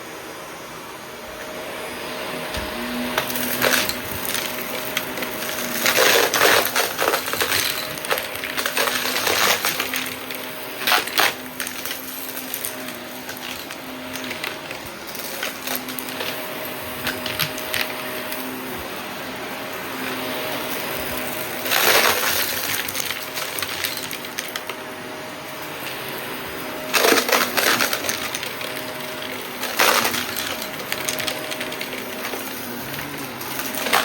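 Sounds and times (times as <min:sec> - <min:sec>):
vacuum cleaner motor hum: 0:00.0 - 0:34.0
debris rattling through nozzle: 0:03.1 - 0:18.7, 0:20.5 - 0:24.8, 0:26.8 - 0:34.0.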